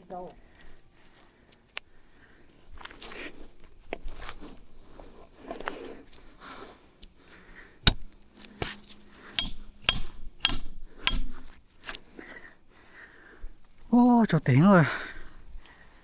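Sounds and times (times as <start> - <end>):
sharp knocks: 7.9 - 8.8, 9.4 - 11.5.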